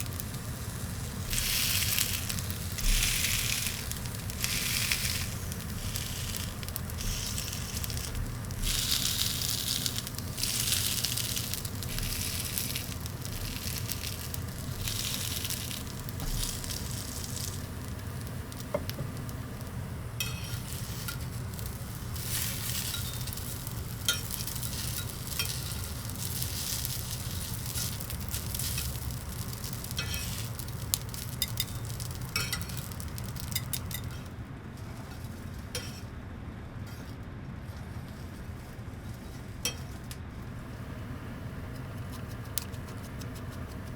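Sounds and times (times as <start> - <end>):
food sizzling on charcoal grill: 0.0 - 36.0, 39.3 - 43.9
steady low hum: 0.0 - 43.9
sharp pops and ticks: 41.7 - 43.9.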